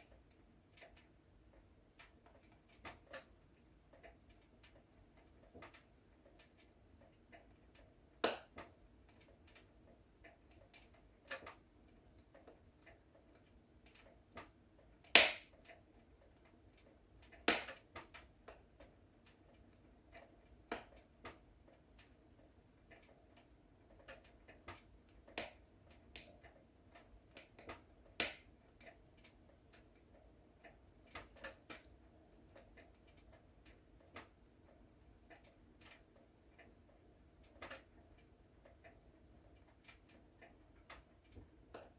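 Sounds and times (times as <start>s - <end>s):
wood fire crackling: 0.0s - 41.9s.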